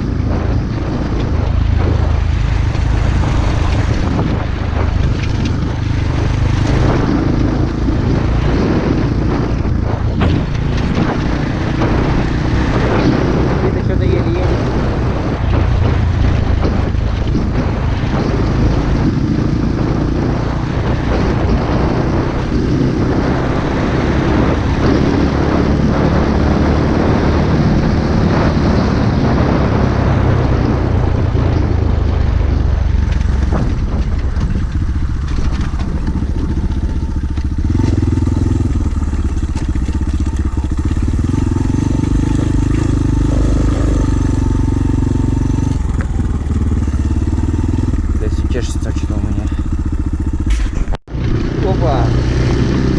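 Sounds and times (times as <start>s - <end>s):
motorbike engine running: 0.0s - 52.9s.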